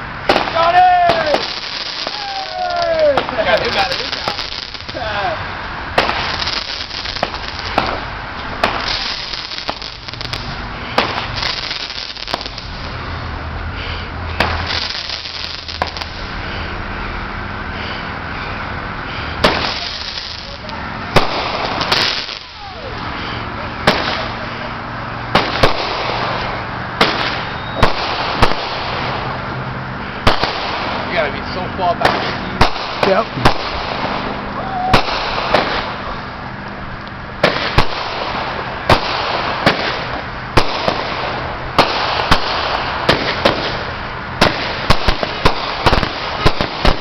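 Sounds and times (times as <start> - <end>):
fireworks bangs and pops: 0.0 - 13.1, 14.3 - 16.5, 17.8 - 47.0
crackling hiss: 0.0 - 47.0
falling firework whistle: 1.1 - 3.2, 27.0 - 28.9, 34.6 - 36.0.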